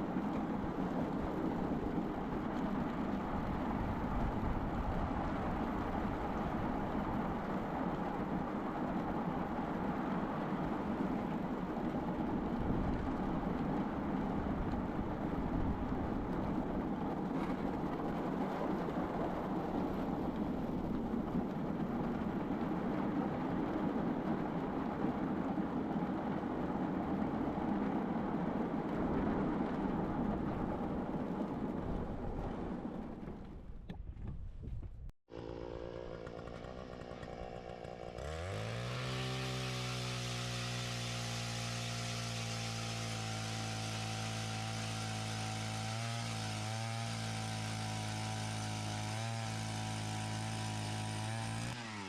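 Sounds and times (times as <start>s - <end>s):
small engine running: 35.3s - 52.0s.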